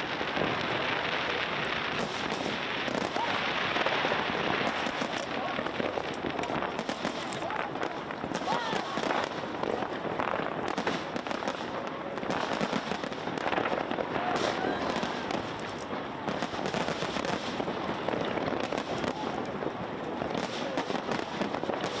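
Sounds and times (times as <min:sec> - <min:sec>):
crowd murmur: 0:00.0 - 0:22.0
fireworks crackling and banging: 0:00.0 - 0:22.0.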